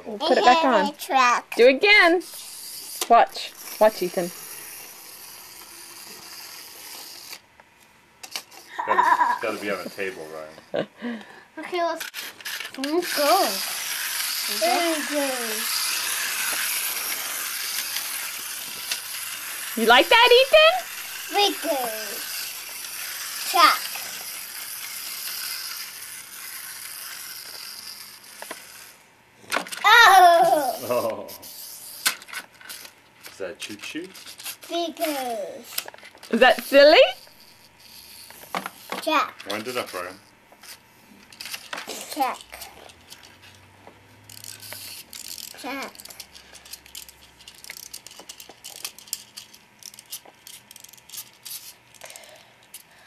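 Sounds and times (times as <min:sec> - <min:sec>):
child's voice: 0:00.0 - 0:01.6, 0:11.6 - 0:12.0, 0:12.8 - 0:13.7, 0:14.5 - 0:15.7, 0:21.3 - 0:22.2, 0:23.4 - 0:24.0, 0:29.8 - 0:30.8, 0:34.7 - 0:35.7, 0:39.0 - 0:39.4, 0:41.9 - 0:42.6, 0:45.6 - 0:46.0
toy train whirring: 0:00.2 - 0:07.6, 0:08.2 - 0:53.0.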